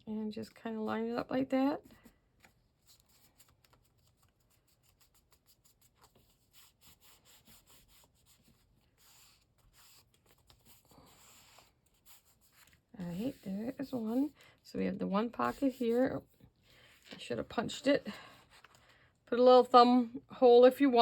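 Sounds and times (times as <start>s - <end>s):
paper rubbing and ticking: 2.4s - 14.3s.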